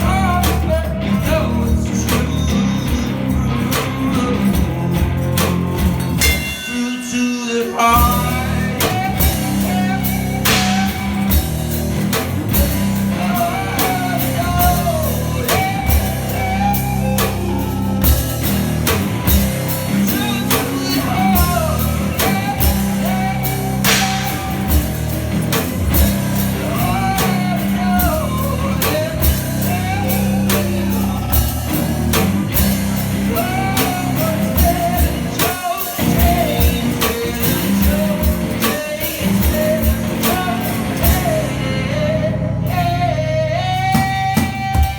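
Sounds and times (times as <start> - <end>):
electric guitar playing rock: 0.0 - 44.9
wavering melody line: 12.9 - 25.4
cymbal hits: 23.8 - 24.9.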